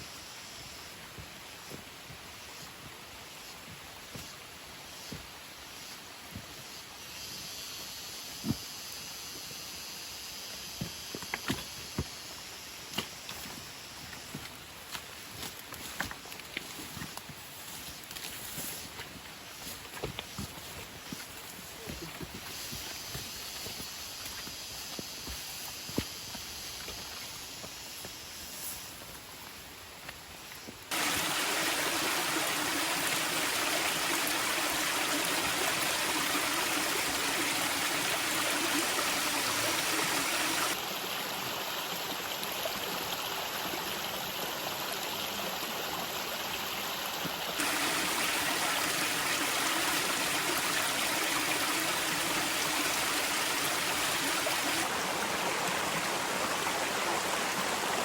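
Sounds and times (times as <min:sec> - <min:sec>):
waterfall rushing: 0:30.9 - 0:41.0, 0:47.6 - 0:58.0.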